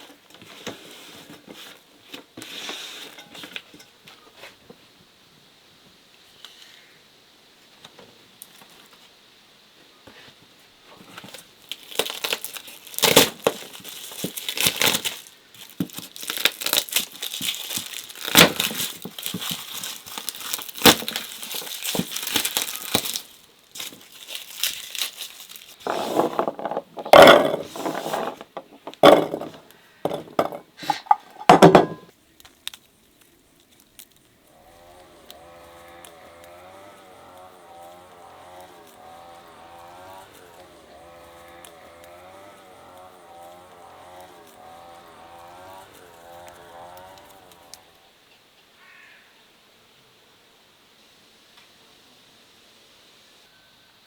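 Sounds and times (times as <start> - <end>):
crinkling handling noise: 10.1 - 37.0.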